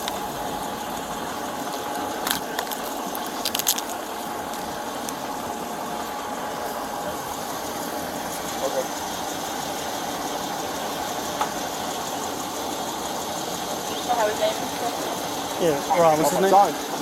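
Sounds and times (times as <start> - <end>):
sharp clicks and rattles: 0.0 - 6.0
vehicle engine idling: 0.0 - 17.0.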